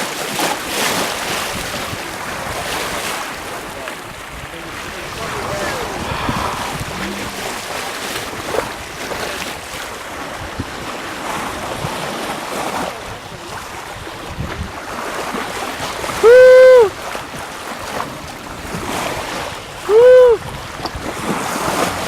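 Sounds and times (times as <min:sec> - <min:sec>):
sea water rushing past boat: 0:00.0 - 0:22.0
wind buffeting microphone: 0:00.3 - 0:22.0
wind rushing: 0:04.8 - 0:08.8
short loud hoot: 0:05.8 - 0:07.8, 0:16.2 - 0:17.0, 0:19.9 - 0:20.4.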